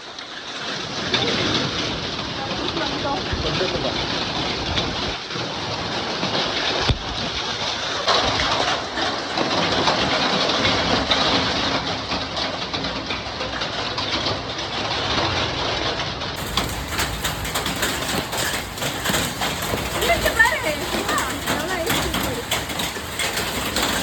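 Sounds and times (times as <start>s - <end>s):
hail and heavy rain pelting: 0.2s - 24.0s.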